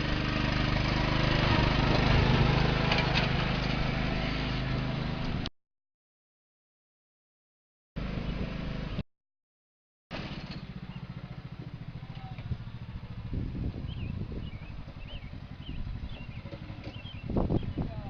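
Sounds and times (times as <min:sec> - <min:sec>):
engine running low: 0:00.0 - 0:05.5, 0:08.0 - 0:09.0, 0:10.1 - 0:18.0
bird chirps: 0:13.8 - 0:18.0.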